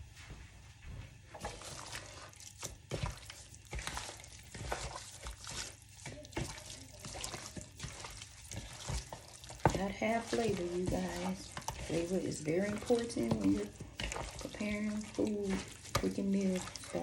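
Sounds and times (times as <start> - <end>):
wet mixing of raw chicken: 1.3 - 17.0.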